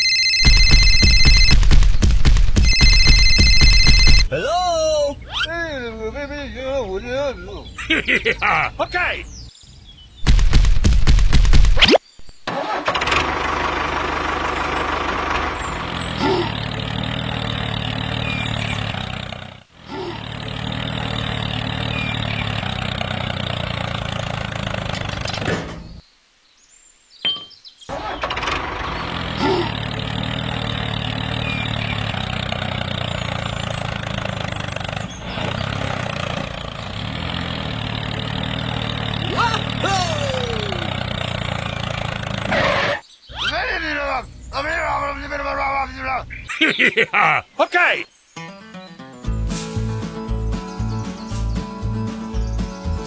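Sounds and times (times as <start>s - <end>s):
mini tractor engine running: 0.0s - 4.3s, 12.5s - 19.6s, 20.2s - 25.5s, 27.9s - 42.5s.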